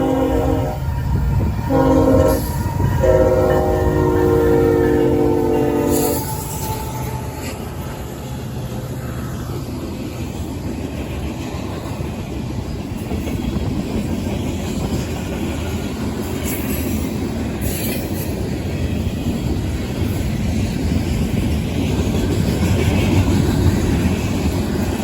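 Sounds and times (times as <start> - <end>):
freight cars rolling on rails: 0.0 - 25.0
wheels clacking over rail joints: 9.5 - 25.0.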